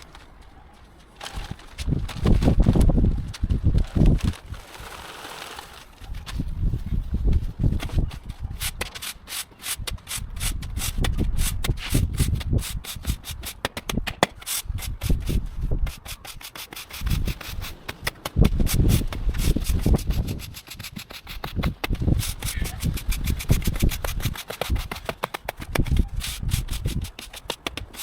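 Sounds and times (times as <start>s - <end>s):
stiff broom brushing sand: 14.4s - 28.0s.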